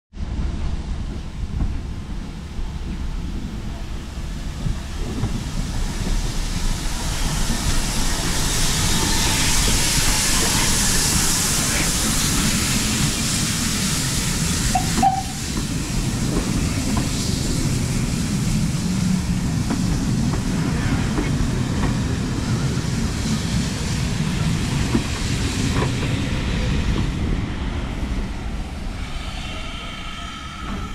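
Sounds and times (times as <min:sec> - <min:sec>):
train wheels rumbling on rails: 0:00.1 - 0:30.9
steam hiss: 0:03.6 - 0:30.9.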